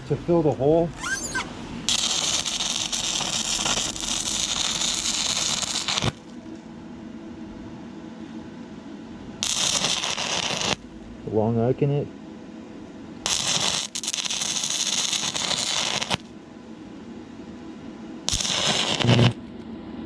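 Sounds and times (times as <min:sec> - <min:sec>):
welder hum: 0:00.5 - 0:06.4, 0:09.4 - 0:11.2, 0:13.2 - 0:16.3, 0:18.3 - 0:19.4
welding arc crackling and sizzling: 0:01.0 - 0:06.5, 0:09.4 - 0:10.8, 0:13.2 - 0:16.3, 0:18.3 - 0:19.4.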